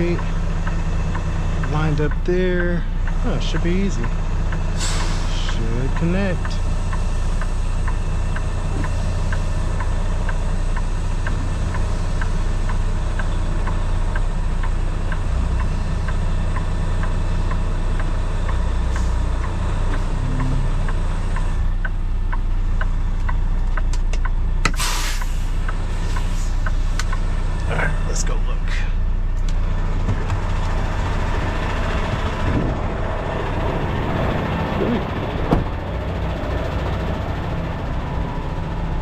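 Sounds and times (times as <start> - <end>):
diesel truck engine running: 0.0 - 39.0
air brake hiss: 4.8 - 5.3, 24.8 - 26.6
light ticking: 5.4 - 24.7.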